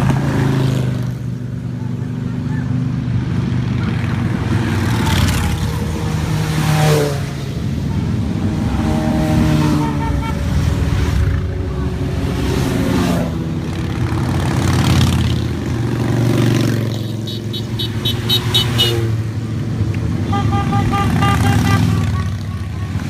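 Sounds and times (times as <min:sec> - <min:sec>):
motorcycles passing and revving: 0:00.0 - 0:23.0
horn-like tone: 0:20.3 - 0:22.9.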